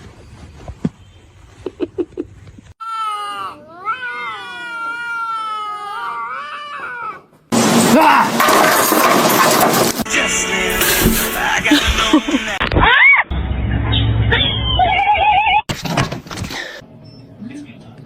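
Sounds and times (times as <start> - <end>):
cat yowling meow: 2.8 - 7.3.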